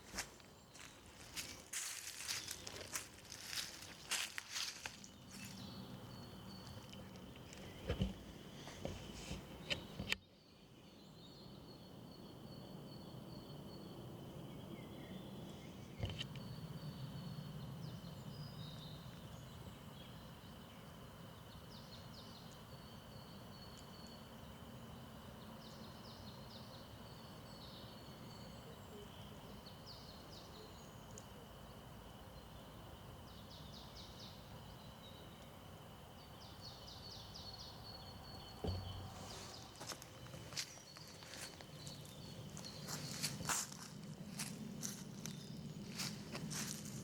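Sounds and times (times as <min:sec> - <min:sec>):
songbird singing: 0:00.0 - 0:47.0
sharp thump: 0:38.6 - 0:39.6.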